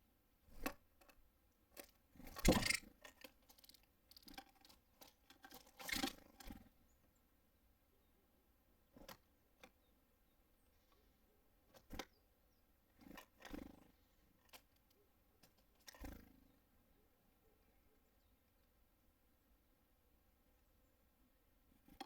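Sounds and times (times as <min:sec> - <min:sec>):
birds tapping and pecking on feeder: 0:00.5 - 0:06.8, 0:08.9 - 0:09.9, 0:11.7 - 0:12.2, 0:12.9 - 0:16.4, 0:21.8 - 0:22.0.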